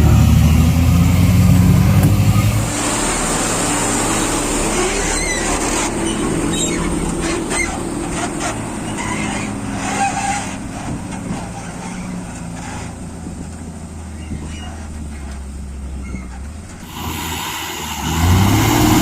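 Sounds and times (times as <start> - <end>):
heavy diesel engine running: 0.0 - 19.0
knocks and clanks: 1.9 - 3.4.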